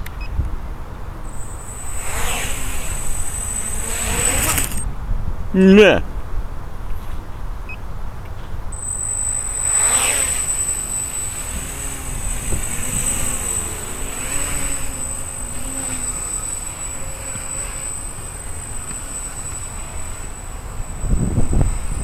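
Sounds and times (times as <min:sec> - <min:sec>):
wind rumble on microphone: 0:00.0 - 0:09.6, 0:10.3 - 0:22.0
drone propellers buzzing: 0:00.9 - 0:04.9, 0:08.6 - 0:22.0.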